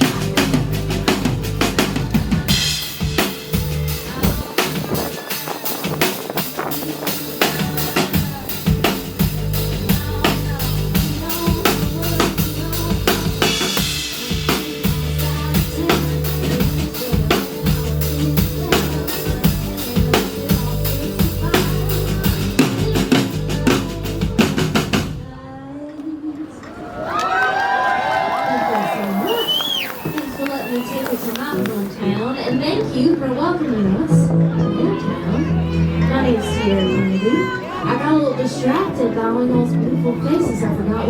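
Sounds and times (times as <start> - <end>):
live band music: 0.0 - 25.2, 29.0 - 41.0
bass line: 0.0 - 25.3, 31.7 - 41.0.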